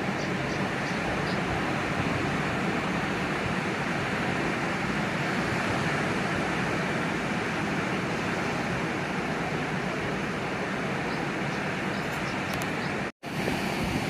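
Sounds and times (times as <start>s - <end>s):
sea waves and surf: 0.0s - 14.0s.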